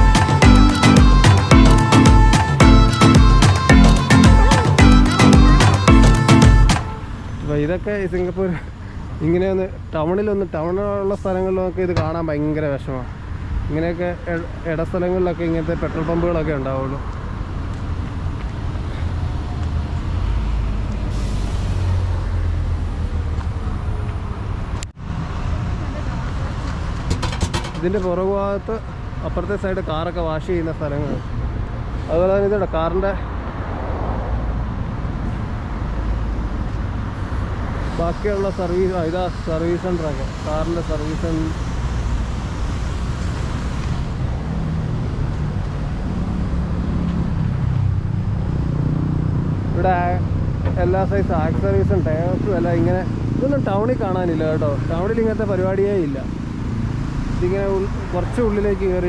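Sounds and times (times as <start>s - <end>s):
passing vehicles engine rumble: 0.0s - 59.0s.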